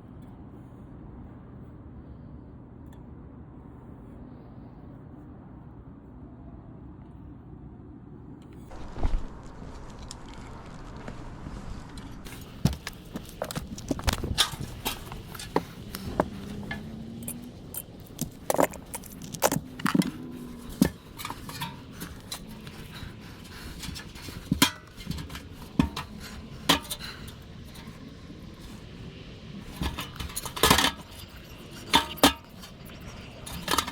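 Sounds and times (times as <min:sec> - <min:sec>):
metal tools clinking and clattering: 0:12.3 - 0:28.2, 0:29.6 - 0:33.9.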